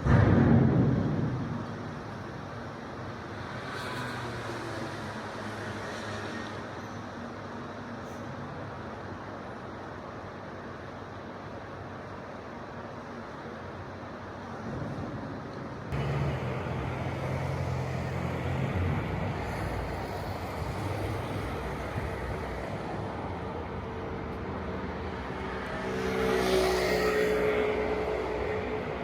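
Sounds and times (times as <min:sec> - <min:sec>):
traffic rumble: 0:00.0 - 0:29.0
vehicle passing: 0:15.9 - 0:29.0.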